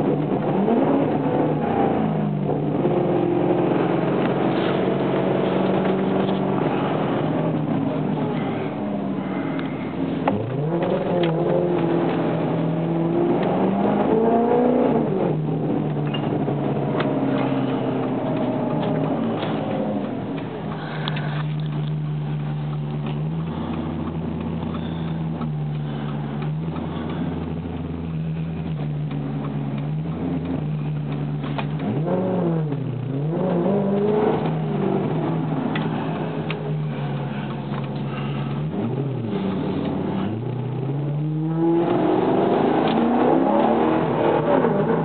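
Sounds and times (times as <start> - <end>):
car engine revving: 0.0 - 45.0.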